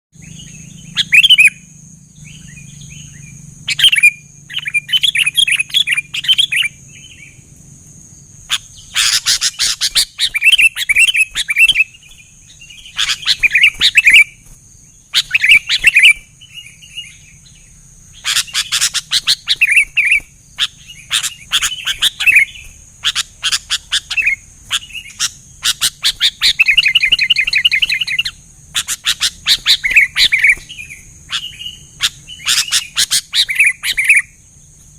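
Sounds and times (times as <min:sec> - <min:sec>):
bulbuls chirping: 0:00.2 - 0:34.9.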